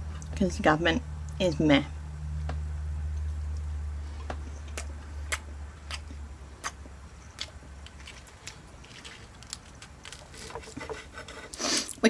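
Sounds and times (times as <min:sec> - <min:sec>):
low hum: 0:00.0 - 0:10.2
eating clicks and smacks: 0:02.5 - 0:08.6.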